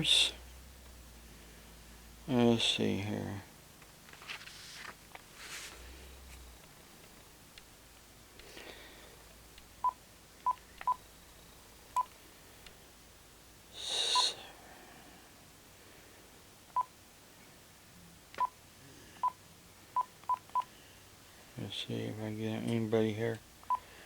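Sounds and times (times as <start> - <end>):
noisy rustle: 3.8 - 6.5
phone keypad beeping: 20.0 - 20.7.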